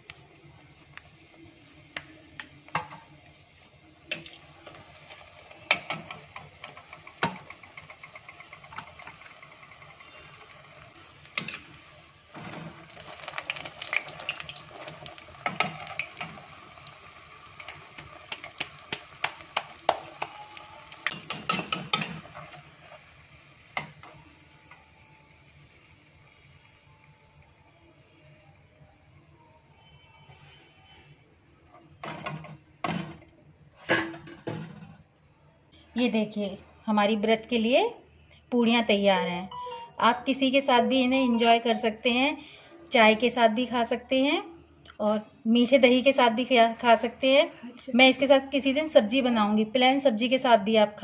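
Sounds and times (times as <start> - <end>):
bread frying in bubbling ghee: 0.0 - 33.8
spoon clinking and scraping pan: 21.1 - 22.6.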